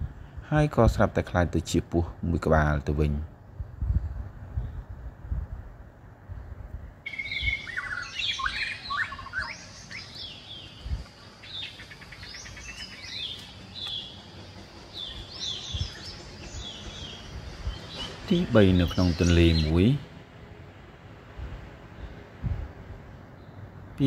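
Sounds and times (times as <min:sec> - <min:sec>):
birds chirping: 0:07.1 - 0:20.3.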